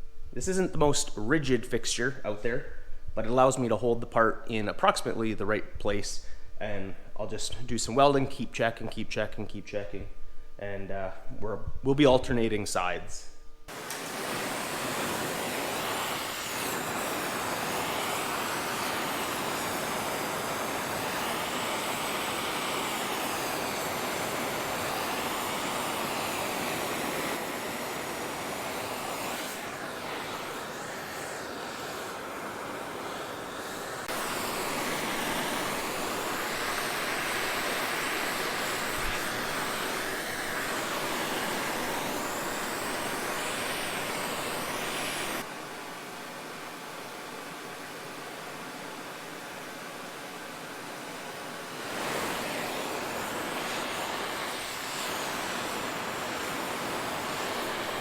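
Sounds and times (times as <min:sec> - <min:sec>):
torch flame hissing: 0:13.6 - 0:58.0.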